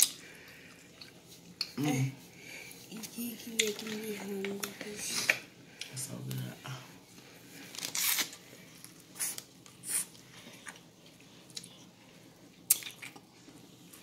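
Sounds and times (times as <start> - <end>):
person chewing corn: 7.6 - 14.0
wet mouth smacks: 12.7 - 13.2.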